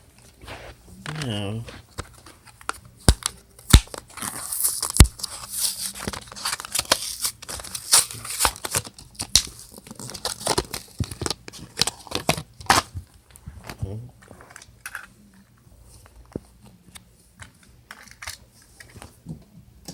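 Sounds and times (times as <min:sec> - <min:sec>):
packaging tearing and crinkling: 0:02.0 - 0:13.0.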